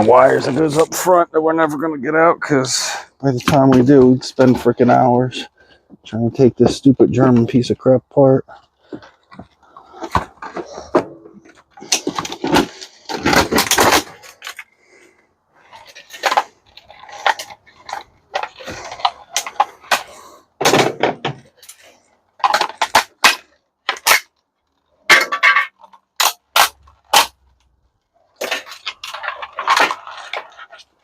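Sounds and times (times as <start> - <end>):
metal and plastic parts clanking: 8.5 - 14.7, 15.6 - 27.7, 28.3 - 31.0.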